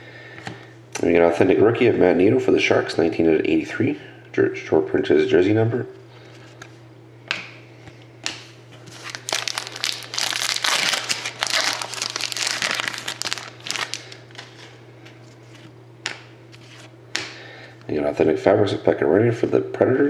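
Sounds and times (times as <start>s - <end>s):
plastic wrapper crinkling: 8.8s - 14.7s.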